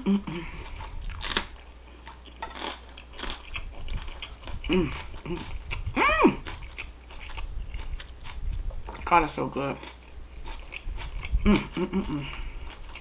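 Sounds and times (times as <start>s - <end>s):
person humming: 0.0s - 0.7s, 4.7s - 6.5s, 11.4s - 12.4s
person chewing food: 0.0s - 9.1s, 9.7s - 13.0s.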